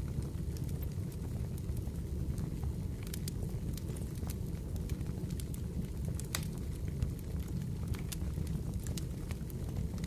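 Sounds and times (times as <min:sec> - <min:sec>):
fireplace crackling: 0:03.0 - 0:10.0.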